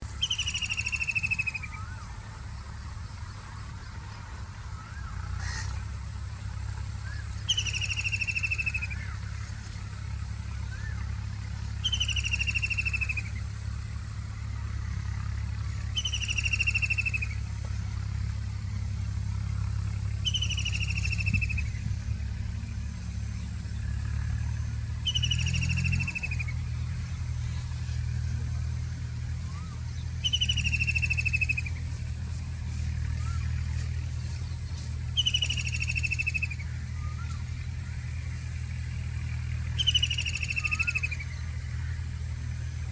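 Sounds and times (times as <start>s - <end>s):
kingfisher rattling trill: 11.8s - 13.3s, 16.0s - 17.4s, 20.2s - 21.6s, 25.0s - 26.5s, 35.2s - 36.7s, 39.8s - 42.0s.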